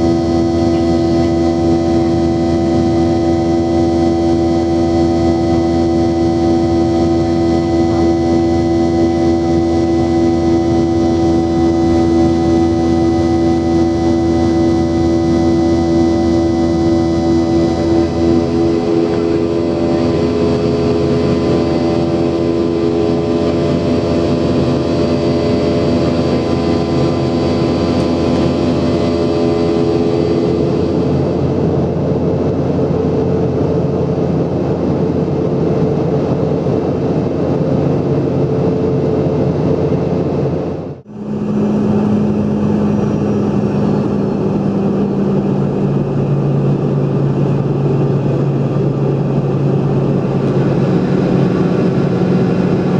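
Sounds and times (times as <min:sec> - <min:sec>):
jet engine whine: 0:00.0 - 0:52.9.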